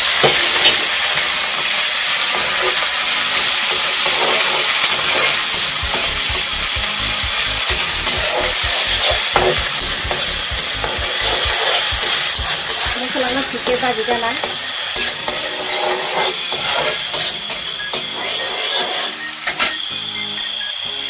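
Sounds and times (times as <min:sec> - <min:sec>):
onion sizzling in hot oil: 0:00.0 - 0:21.0
spatula knocking on pan: 0:05.9 - 0:13.8.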